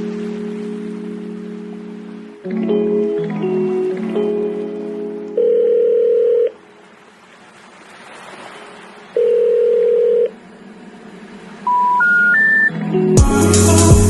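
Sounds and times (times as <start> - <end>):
telephone ringing tone beeps: 5.4 - 6.6, 9.2 - 10.3, 11.7 - 12.8.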